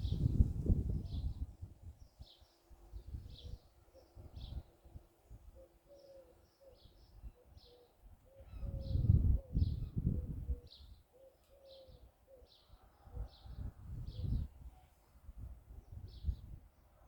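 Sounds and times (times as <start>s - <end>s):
small birds chirping: 0.0s - 15.0s
dove cooing: 5.6s - 14.4s.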